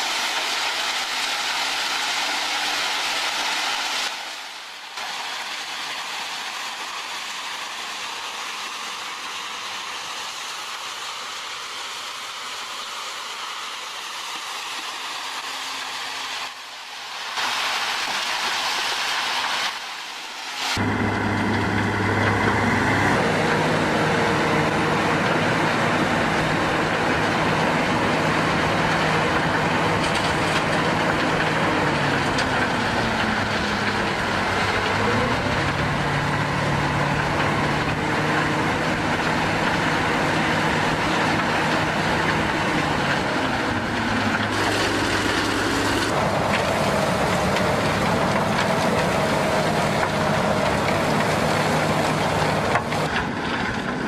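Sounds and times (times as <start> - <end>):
heavy machinery diesel engines revving: 20.8 - 54.0.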